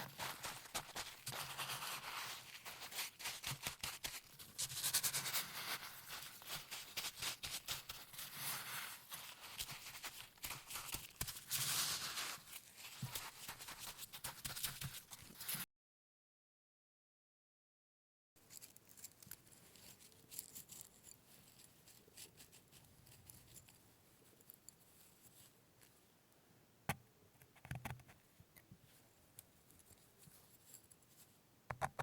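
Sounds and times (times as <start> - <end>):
coarse salt scraping and crunching: 0.0 - 15.6.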